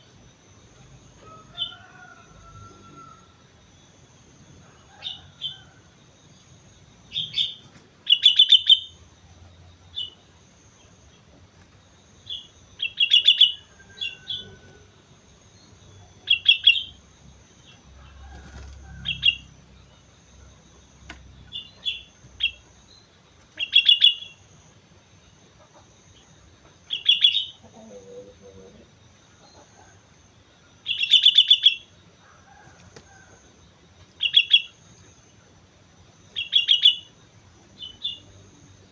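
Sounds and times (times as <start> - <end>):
bulbul chattering calls: 7.1 - 14.7, 15.6 - 17.0, 17.6 - 24.6, 25.6 - 30.1, 30.8 - 33.3, 34.2 - 35.5, 36.3 - 38.3.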